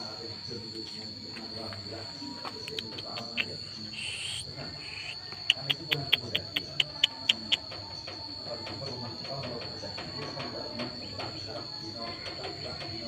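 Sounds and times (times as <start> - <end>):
steady high-pitched whine: 0.0 - 13.0
sharp bird chirps: 2.6 - 7.7.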